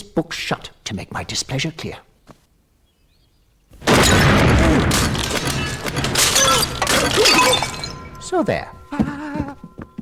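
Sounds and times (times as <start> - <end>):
cartoon crash with shattering: 3.8 - 8.8.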